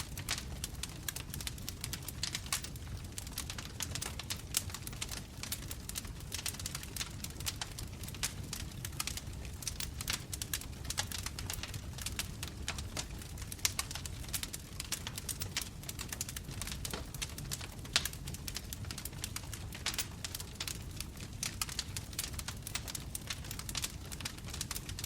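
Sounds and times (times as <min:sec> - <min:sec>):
bonfire crackling: 0:00.0 - 0:25.0.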